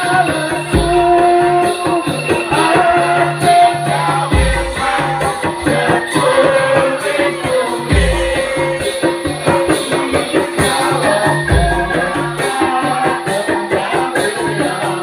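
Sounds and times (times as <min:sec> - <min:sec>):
fast percussion with jingling rattles: 0:00.0 - 0:15.0
held melodic line: 0:00.0 - 0:15.0.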